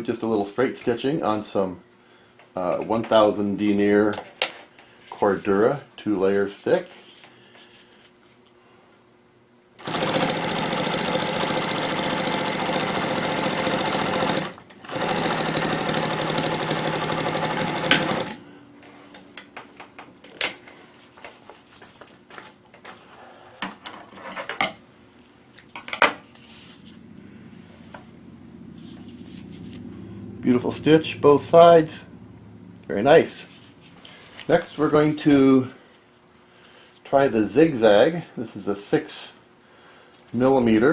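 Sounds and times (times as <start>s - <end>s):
industrial sewing machine stitching: 9.8s - 18.4s.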